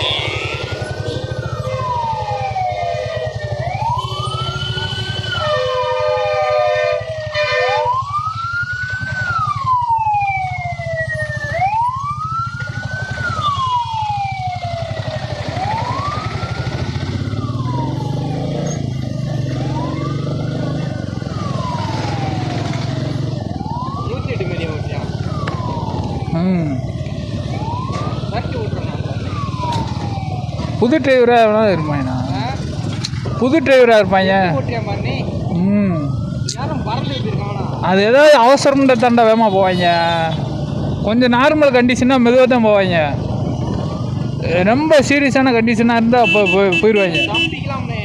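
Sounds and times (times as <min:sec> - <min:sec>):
ambulance siren wailing: 0:00.0 - 0:48.0
motorbike engine running: 0:12.0 - 0:24.3, 0:24.9 - 0:30.9.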